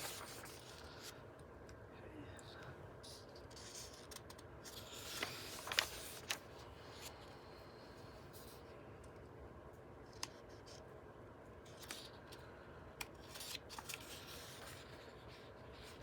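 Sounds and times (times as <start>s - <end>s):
book pages turning: 0.0s - 1.1s, 3.6s - 7.2s, 13.0s - 16.0s
paper rustling and snapping: 0.0s - 1.1s, 4.0s - 7.1s, 13.0s - 15.0s.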